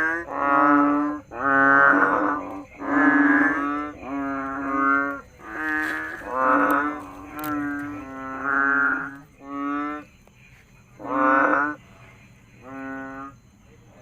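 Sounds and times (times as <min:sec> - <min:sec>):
frogs calling: 0:00.0 - 0:14.0.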